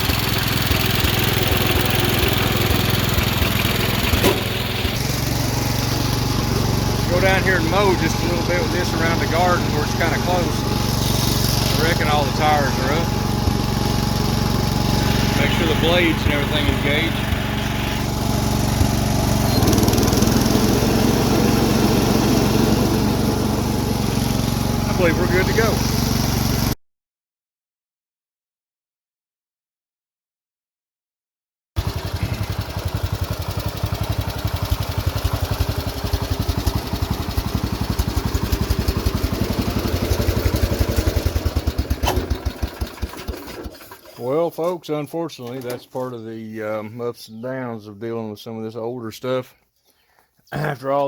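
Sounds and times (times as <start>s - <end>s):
lawn mower engine running: 0.0s - 26.8s, 31.8s - 44.8s, 45.4s - 46.0s
mower blades whirring: 0.0s - 26.8s, 31.8s - 44.3s.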